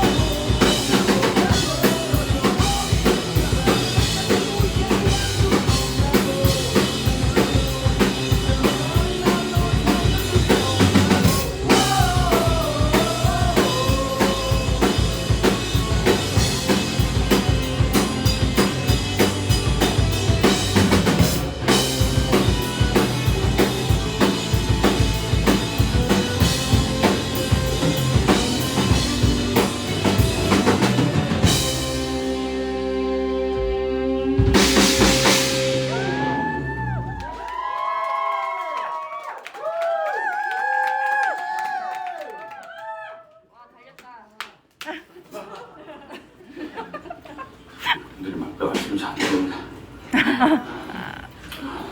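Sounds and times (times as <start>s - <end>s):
fast drum-kit beat: 0.0s - 32.6s, 34.4s - 36.3s
punk rock band playing: 0.0s - 37.2s.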